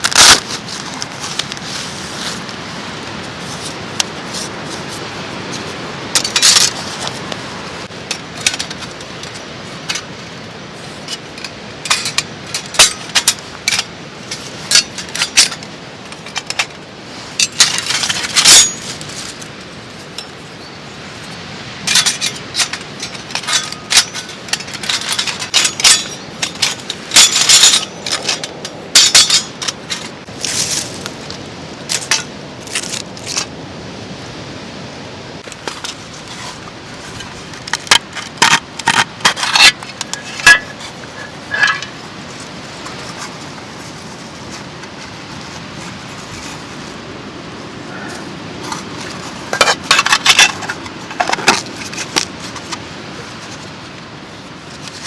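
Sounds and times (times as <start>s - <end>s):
steady background hiss: 0.0s - 55.0s
metal pieces clinking: 21.9s - 30.7s, 37.7s - 42.0s.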